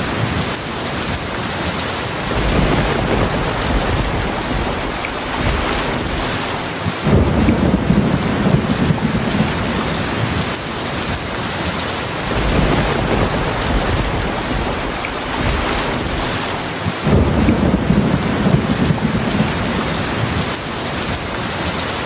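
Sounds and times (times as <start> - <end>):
heavy rain pouring: 0.0 - 22.0
low rolling thunder: 2.2 - 11.4, 12.1 - 21.1.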